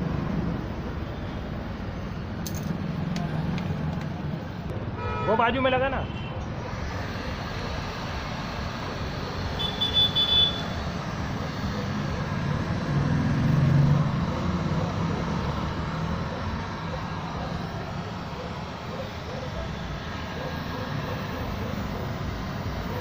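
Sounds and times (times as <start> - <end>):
road traffic noise: 0.0 - 23.0
vehicle engine passing: 11.0 - 22.0.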